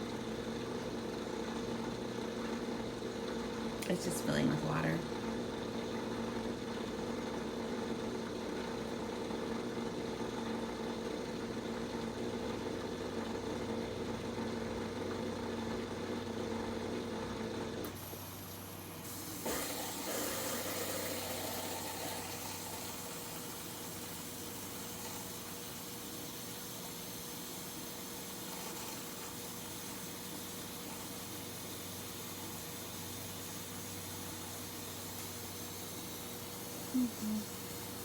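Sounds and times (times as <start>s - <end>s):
dishwasher hum: 0.0s - 38.0s
hiss of running water: 18.0s - 38.0s.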